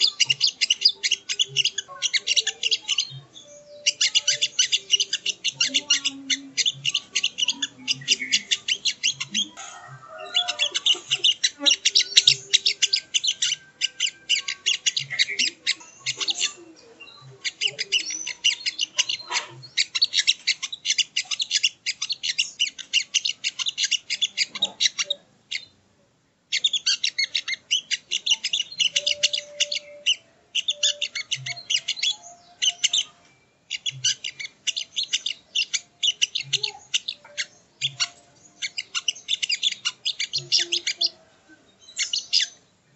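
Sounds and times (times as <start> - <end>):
bird high chattering call: 0.0 - 25.7, 26.5 - 41.2, 41.8 - 42.6.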